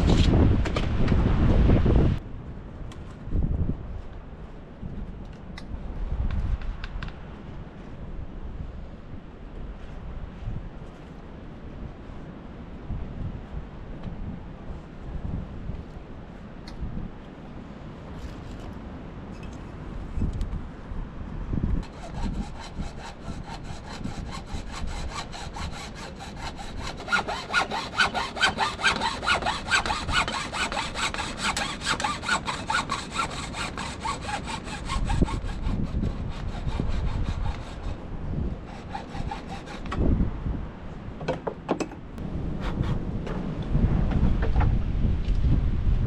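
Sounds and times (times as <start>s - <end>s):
hand saw cutting wood: 21.8s - 38.0s, 38.6s - 40.1s.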